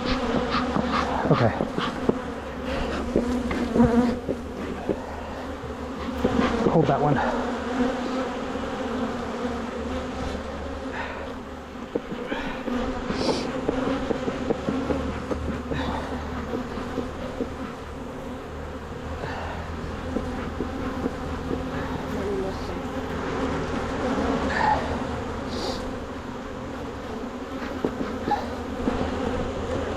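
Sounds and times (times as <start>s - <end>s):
honeybees buzzing: 0.0s - 29.9s
hive frame clicks: 2.9s - 5.0s, 11.9s - 12.3s, 20.1s - 21.8s.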